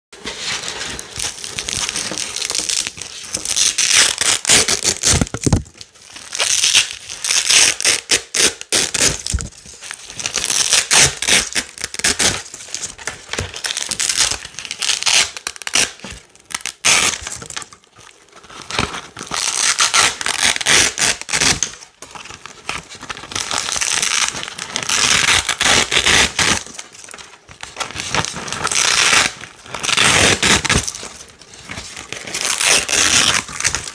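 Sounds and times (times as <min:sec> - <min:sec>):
velcro ripping: 0:00.9 - 0:05.6, 0:06.3 - 0:09.5, 0:10.3 - 0:12.4, 0:13.6 - 0:17.4, 0:19.3 - 0:21.7, 0:23.4 - 0:26.8, 0:28.0 - 0:31.0, 0:32.2 - 0:33.9.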